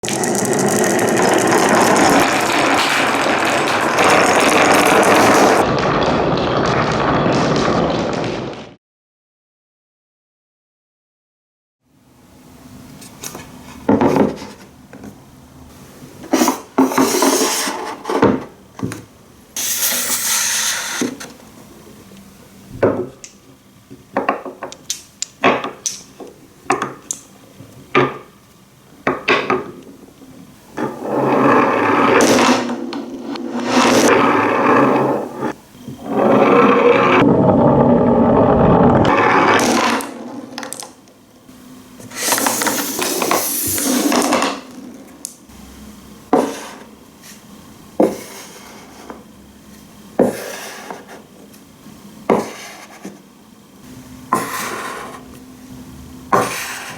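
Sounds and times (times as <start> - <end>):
marble clicking on wooden pieces: 0.0 - 5.6, 39.1 - 41.0
marble rumbling over wood: 0.0 - 8.8, 29.0 - 41.1, 42.1 - 45.4.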